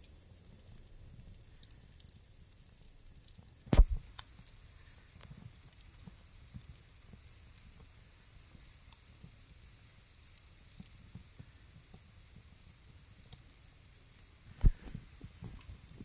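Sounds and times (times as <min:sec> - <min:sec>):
faint hiss: 0:00.0 - 0:16.0
fire crackling and popping: 0:00.0 - 0:16.0
loud deep thump: 0:03.8 - 0:04.0.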